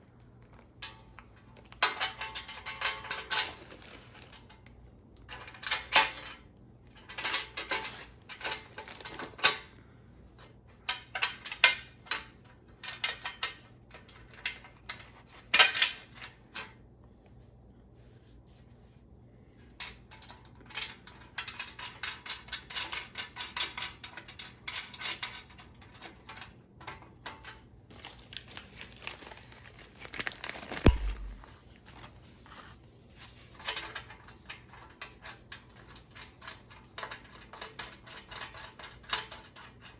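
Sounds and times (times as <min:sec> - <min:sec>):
heavy metallic knock: 0:30.9 - 0:31.5.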